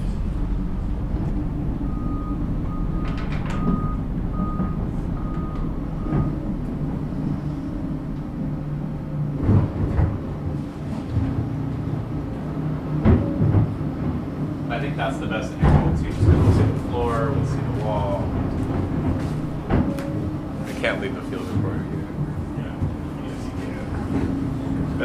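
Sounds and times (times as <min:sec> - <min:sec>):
diesel engine running: 0:00.0 - 0:25.0
heavy clunks: 0:00.0 - 0:25.0
travel alarm beeping: 0:01.8 - 0:07.9.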